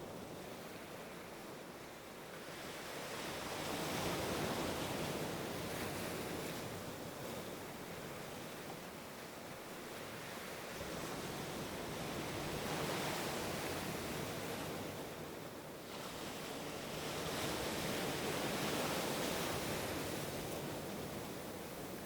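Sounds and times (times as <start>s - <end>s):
ocean waves washing on shore: 0.0s - 22.0s.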